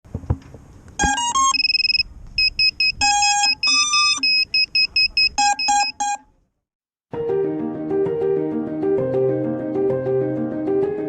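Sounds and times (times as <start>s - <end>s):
electronic motor beeps: 1.0s - 6.2s.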